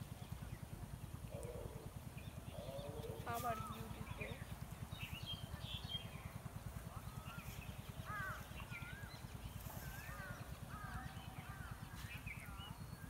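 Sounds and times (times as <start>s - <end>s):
birds whistling calls: 1.3s - 6.3s.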